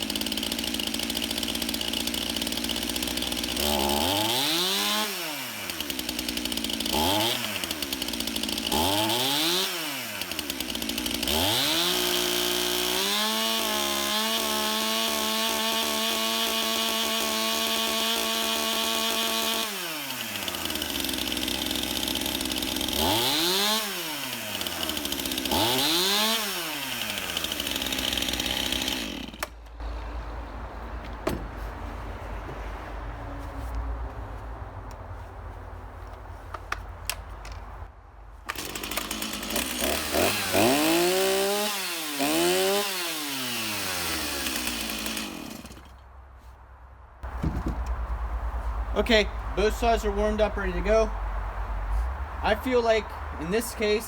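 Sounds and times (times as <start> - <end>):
chainsaw revving: 0.0 - 29.6, 38.5 - 46.0.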